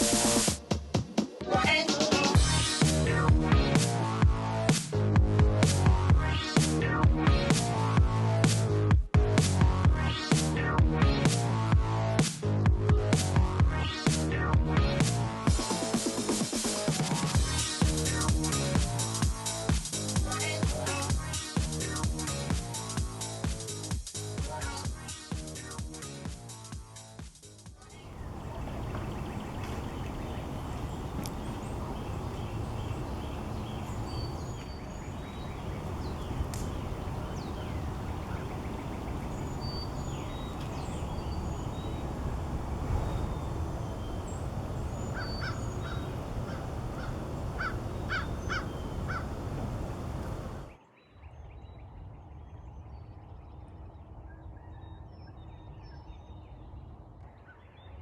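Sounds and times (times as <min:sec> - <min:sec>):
birds calling: 0:27.9 - 0:50.7
steady low background noise: 0:28.0 - 0:50.8.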